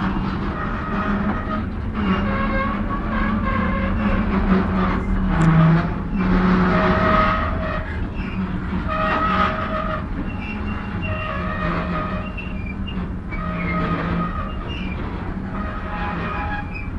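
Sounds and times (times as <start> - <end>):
freight train rumble: 0.0 - 16.9.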